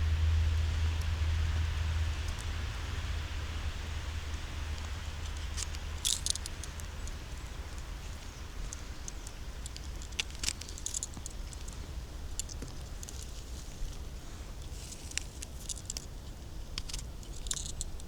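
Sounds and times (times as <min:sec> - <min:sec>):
footsteps on dry leaves and twigs: 0:05.5 - 0:15.9.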